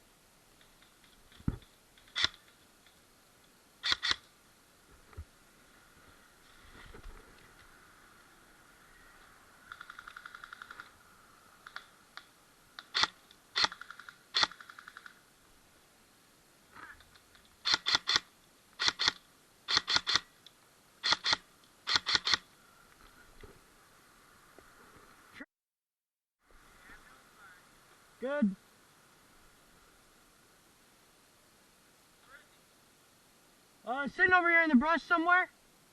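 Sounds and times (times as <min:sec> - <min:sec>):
rapid fire rattle: 0:09.7 - 0:10.9, 0:12.8 - 0:15.3.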